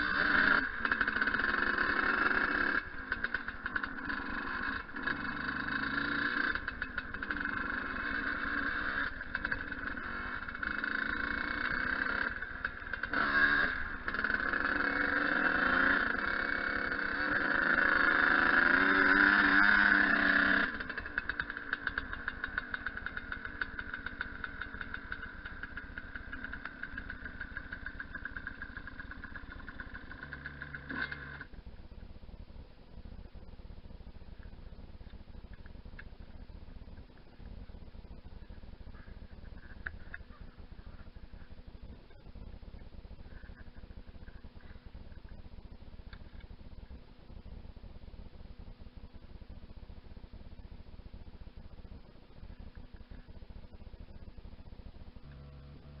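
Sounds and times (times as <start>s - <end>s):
dirt bike engine revving: 0.0s - 31.5s, 55.2s - 56.0s.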